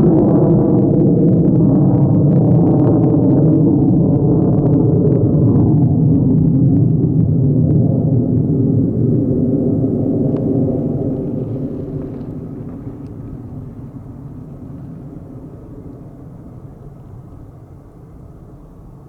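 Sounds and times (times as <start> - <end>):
fighter jet engine rumble: 0.0 - 19.0.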